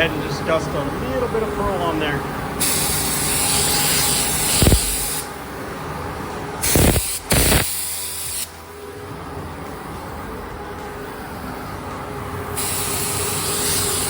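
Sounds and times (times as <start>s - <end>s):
blasts of air: 2.6s - 5.2s, 6.6s - 8.5s
paint spray gun hissing: 2.6s - 5.3s, 6.6s - 8.5s, 12.6s - 14.0s.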